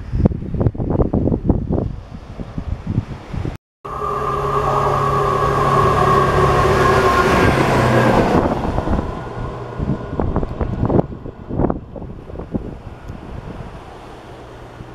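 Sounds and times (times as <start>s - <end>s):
diesel train droning: 3.8s - 14.9s.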